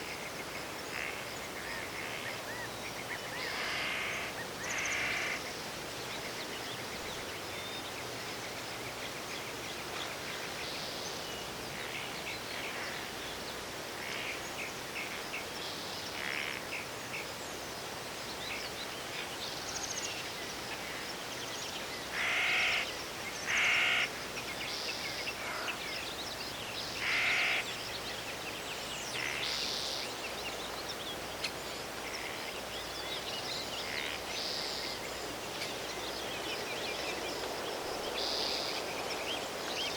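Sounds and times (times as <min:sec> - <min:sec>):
background hiss: 0:00.0 - 0:39.9
crow cawing: 0:22.2 - 0:22.8, 0:23.5 - 0:24.1, 0:27.0 - 0:27.6.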